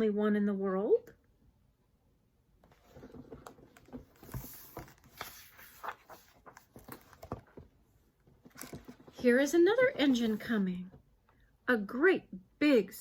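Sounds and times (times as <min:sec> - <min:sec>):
paper pages rustling: 0:02.7 - 0:07.7, 0:08.4 - 0:09.3.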